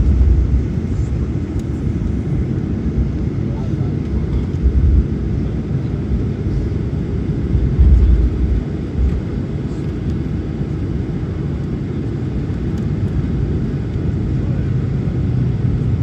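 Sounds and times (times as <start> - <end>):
heavy low bumps: 0.0 - 3.2, 4.1 - 5.4, 6.5 - 9.5
airplane cabin rumble while taxiing: 0.0 - 16.0.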